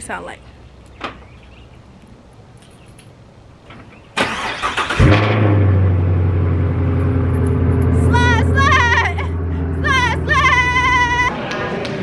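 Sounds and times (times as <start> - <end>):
car engine starting: 4.1 - 11.3
car engine idling: 4.2 - 11.3.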